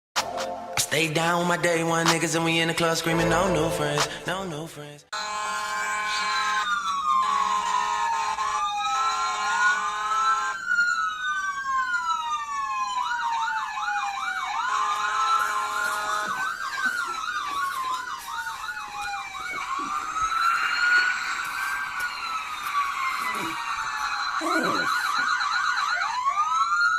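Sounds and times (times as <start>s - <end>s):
fire truck siren wailing: 2.8s - 4.4s, 5.2s - 26.9s
horn blasts: 2.8s - 4.4s.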